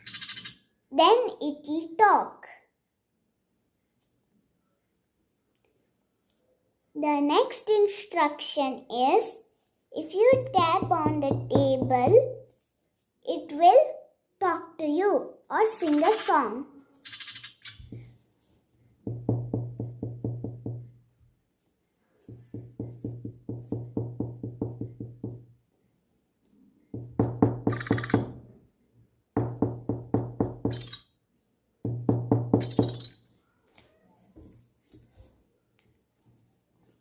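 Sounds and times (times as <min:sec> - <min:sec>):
toy bird electronic chirps: 0:00.0 - 0:00.6, 0:17.0 - 0:17.9, 0:27.7 - 0:28.3, 0:30.7 - 0:31.1, 0:32.6 - 0:33.2
knocking on a table: 0:10.3 - 0:12.3, 0:19.1 - 0:20.9, 0:22.3 - 0:25.5, 0:27.0 - 0:28.4, 0:29.4 - 0:30.7, 0:31.9 - 0:33.0.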